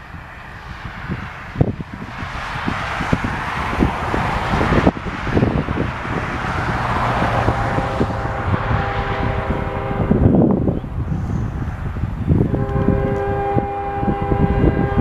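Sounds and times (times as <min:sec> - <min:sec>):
diesel locomotives rumbling: 0:00.0 - 0:15.0
wind buffeting microphone: 0:00.0 - 0:15.0
locomotive air horn: 0:07.0 - 0:10.4, 0:12.4 - 0:15.0.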